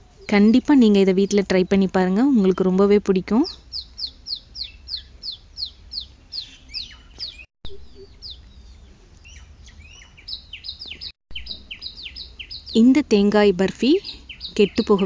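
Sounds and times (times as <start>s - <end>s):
bird chirping quick high chirps: 3.5s - 12.9s.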